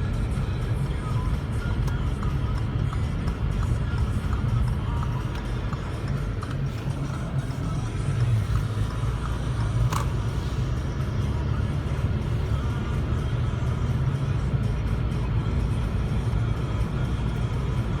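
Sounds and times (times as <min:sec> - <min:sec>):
motor vehicle rumbling: 0:00.0 - 0:18.0
music playing: 0:00.0 - 0:18.0.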